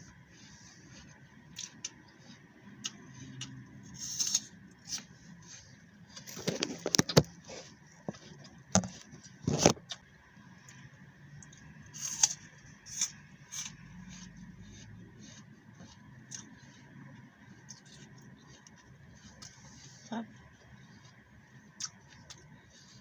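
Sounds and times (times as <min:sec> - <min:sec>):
soft chewing clicks: 0:01.5 - 0:03.7, 0:20.6 - 0:22.6
apple crunching: 0:02.8 - 0:05.1, 0:11.4 - 0:16.8, 0:21.7 - 0:22.6.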